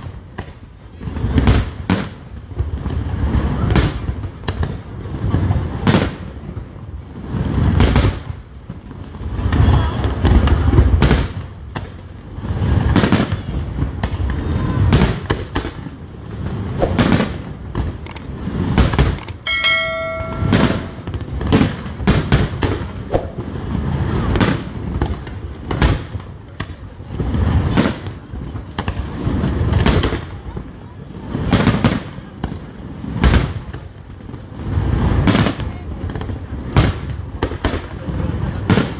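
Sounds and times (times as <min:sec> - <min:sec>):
fireworks cracks and booms: 0:00.0 - 0:38.9.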